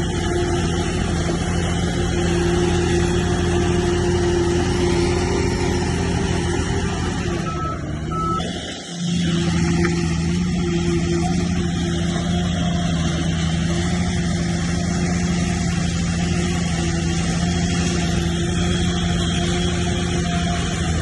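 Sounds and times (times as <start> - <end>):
diesel engine running: 0.0 - 21.0
short high beeps: 7.4 - 8.5.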